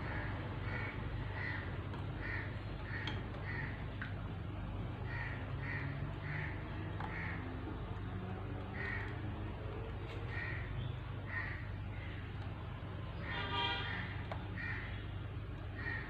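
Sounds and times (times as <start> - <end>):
bird harsh calls: 10.3 - 12.2.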